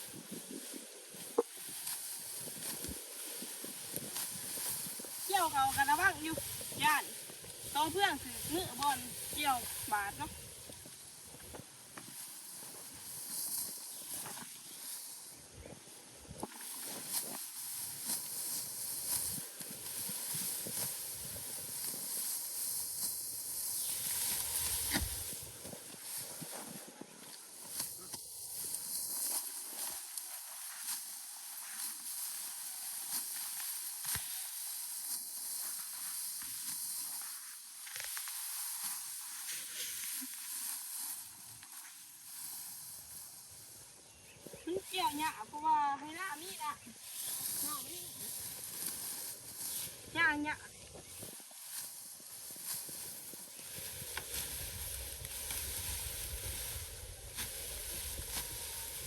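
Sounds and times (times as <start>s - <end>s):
dry stalks rustling and crunching: 0.0s - 59.0s
sickle snapping through straw: 1.2s - 6.7s, 16.4s - 43.2s, 46.4s - 50.1s, 51.0s - 59.0s.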